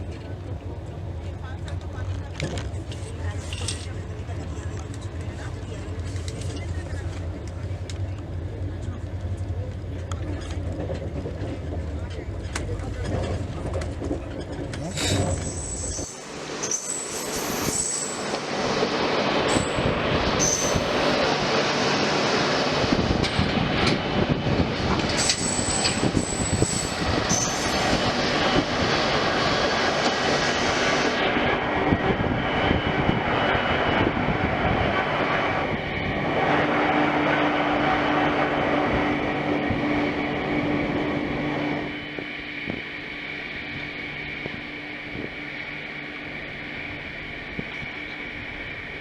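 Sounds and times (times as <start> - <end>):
train wheels on rails: 0.0 - 33.3
high wheel squeal: 14.3 - 18.4, 19.5 - 21.2, 25.2 - 28.0.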